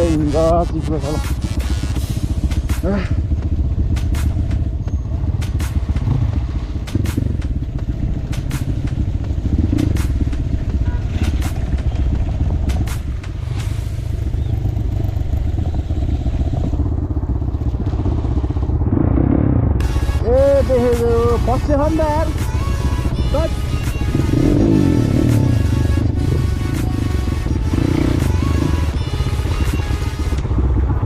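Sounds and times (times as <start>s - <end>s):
motorcycle engine running: 0.0s - 31.0s
sharp clicks: 5.4s - 6.2s, 8.2s - 9.0s.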